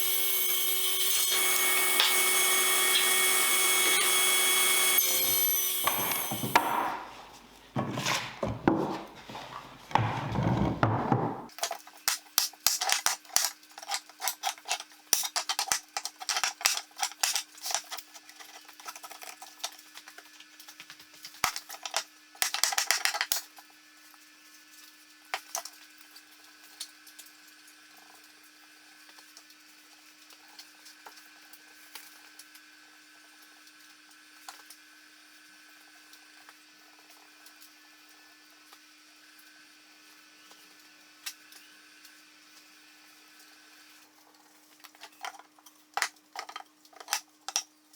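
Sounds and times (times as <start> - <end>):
clicks and knocks of wood and tools: 5.8 - 20.2, 44.8 - 47.7.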